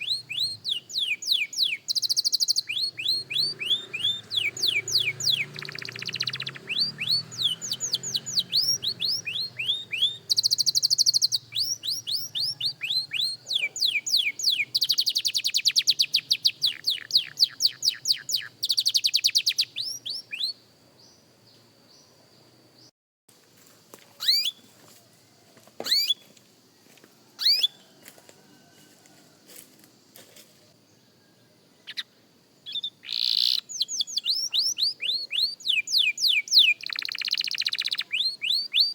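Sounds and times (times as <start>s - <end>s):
canary singing: 0.0s - 21.2s, 24.2s - 24.7s, 25.8s - 26.3s, 27.4s - 28.0s, 31.8s - 38.9s.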